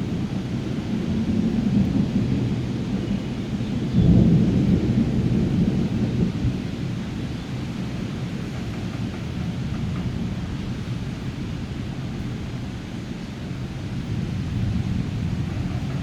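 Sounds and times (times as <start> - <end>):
steady rain: 0.0 - 16.0
thunder rumbling: 0.0 - 16.0.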